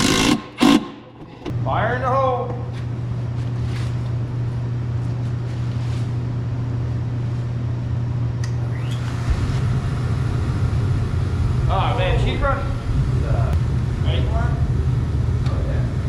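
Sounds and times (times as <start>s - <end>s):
machine hum: 0.0s - 1.8s, 7.8s - 16.0s.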